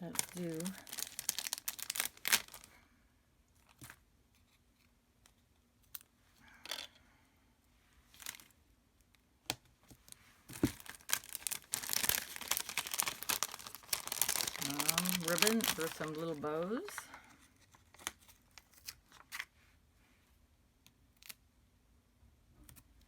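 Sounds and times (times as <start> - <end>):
crinkling and rustling: 0.0 - 2.7, 8.1 - 8.6, 9.6 - 19.6.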